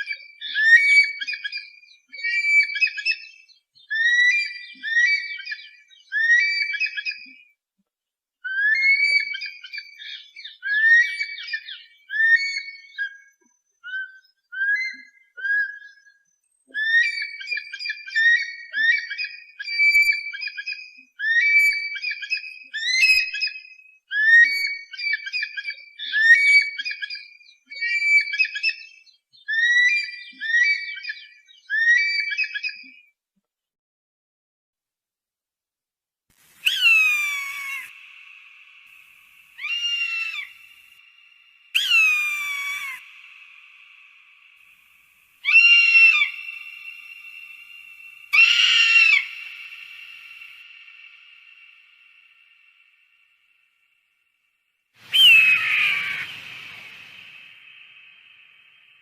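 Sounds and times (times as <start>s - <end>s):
eagle whistled screams: 8.6s - 13.1s, 16.8s - 20.6s, 21.2s - 28.8s, 36.6s - 41.0s, 41.7s - 44.0s, 45.4s - 51.8s, 55.0s - 59.0s.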